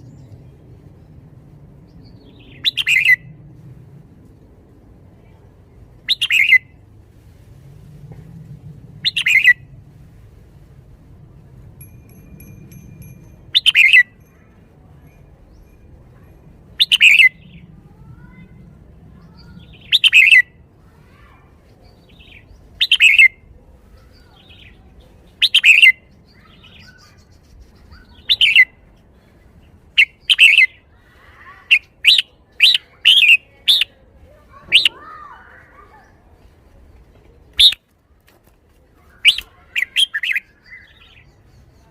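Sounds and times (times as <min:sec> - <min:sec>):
bulbul singing: 0:06.1 - 0:06.7, 0:11.8 - 0:15.9, 0:16.8 - 0:17.6, 0:19.2 - 0:20.6, 0:24.2 - 0:28.7, 0:37.6 - 0:37.8.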